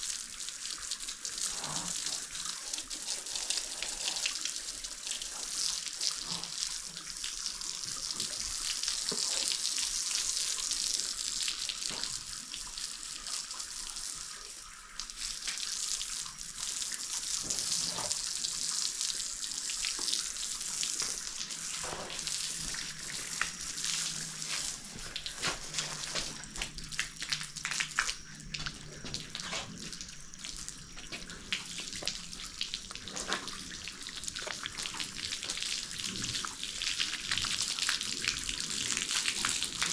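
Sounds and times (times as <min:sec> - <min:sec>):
water spraying from hose: 0:00.0 - 0:39.9.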